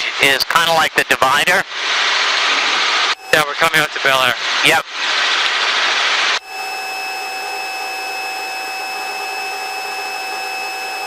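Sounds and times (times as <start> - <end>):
helicopter cabin drone: 2.5 - 11.0
high whining tones: 3.1 - 3.9, 6.1 - 11.0.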